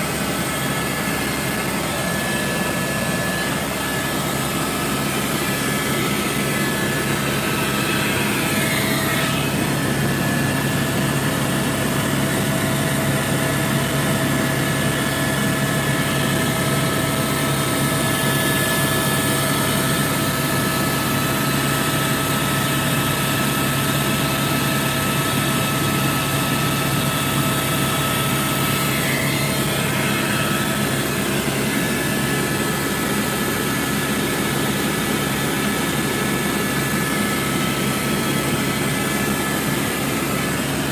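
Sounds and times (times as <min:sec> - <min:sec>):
helicopter drone from cabin: 0:00.0 - 0:40.9.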